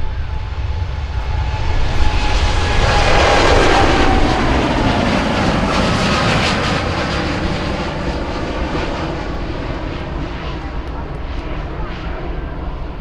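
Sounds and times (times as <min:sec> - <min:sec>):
airliner engines passing: 0:00.0 - 0:13.0.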